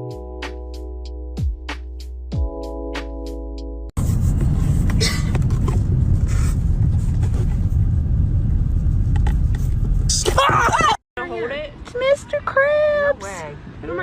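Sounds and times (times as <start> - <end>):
music with a beat: 0.0 - 3.9
loud steady low rumble: 4.0 - 10.7.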